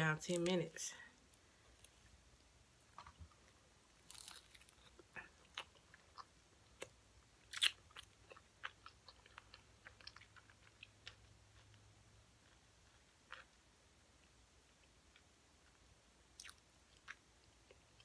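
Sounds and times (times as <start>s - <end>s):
chewing crunchy fried fish: 2.8s - 18.0s.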